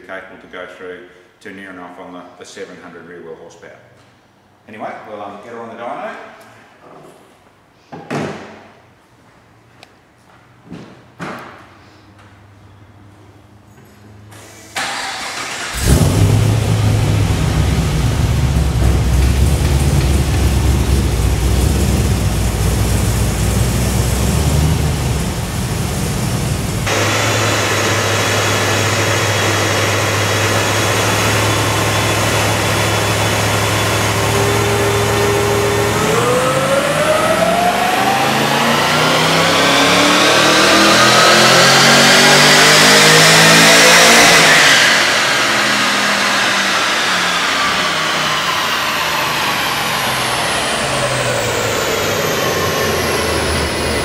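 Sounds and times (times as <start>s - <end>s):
car engine starting and idling: 14.3s - 54.0s
engine revs climbing: 14.8s - 54.0s.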